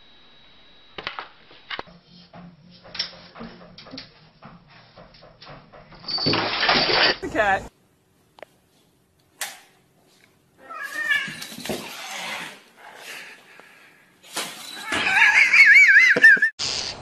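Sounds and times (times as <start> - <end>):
cat yowling: 10.6 - 11.4, 14.8 - 16.1.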